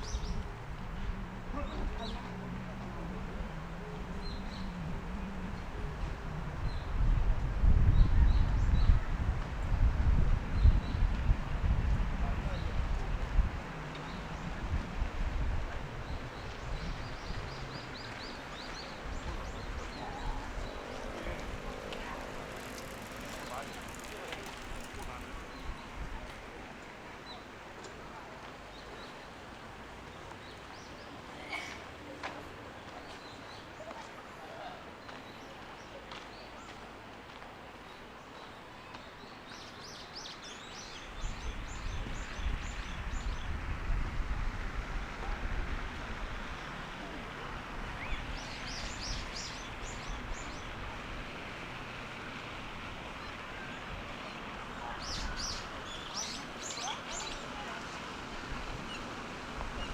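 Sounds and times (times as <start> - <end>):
park background wash: 0.0 - 59.9
steady background noise: 12.2 - 59.9.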